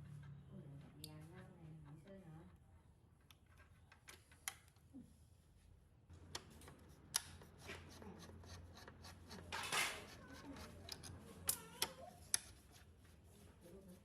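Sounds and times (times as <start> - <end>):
small clicks and handling noises: 3.2 - 4.9, 8.8 - 12.6.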